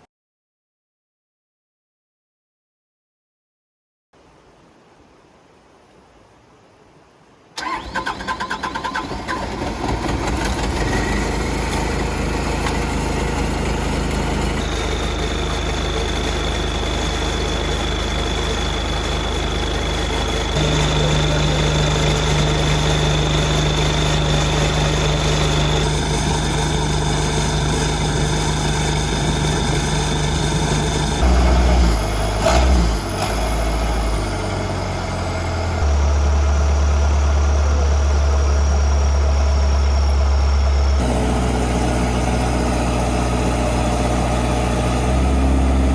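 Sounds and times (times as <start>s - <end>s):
diesel engine running: 7.6s - 45.9s
high whine: 10.5s - 45.9s.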